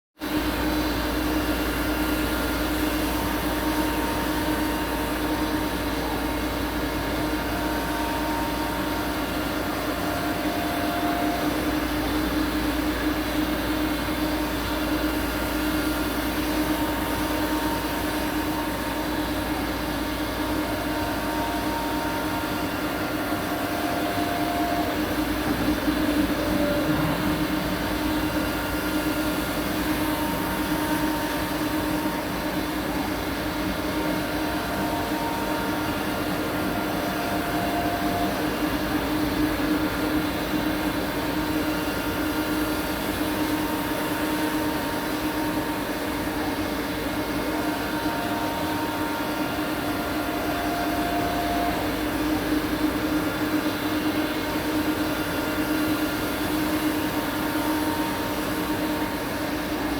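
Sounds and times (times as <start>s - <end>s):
grinding machine humming: 0.3s - 59.9s
high machine tone: 15.1s - 40.4s.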